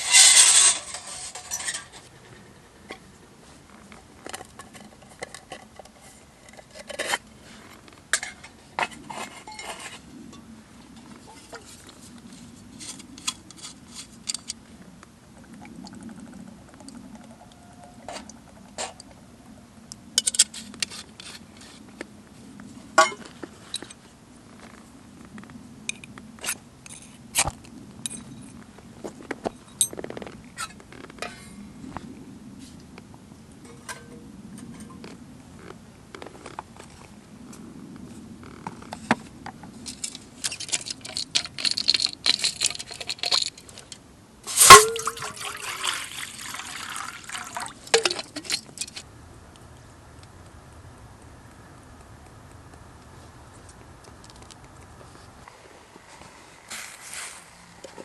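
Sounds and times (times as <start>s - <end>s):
low steady hum: 0.0s - 58.0s
camp gear clicks and knocks: 38.5s - 44.0s.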